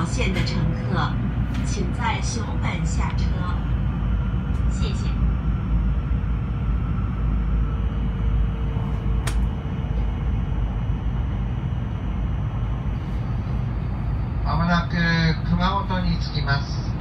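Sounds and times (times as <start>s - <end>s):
train cabin rumble: 0.0s - 17.0s
sharp click: 9.2s - 9.5s.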